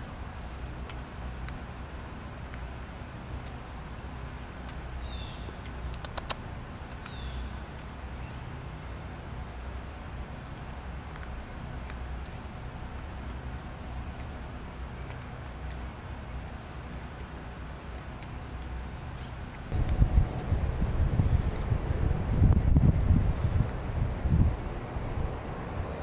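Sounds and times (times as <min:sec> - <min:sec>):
wind rumble: 0:00.0 - 0:26.0
sharp clicks: 0:05.6 - 0:07.2.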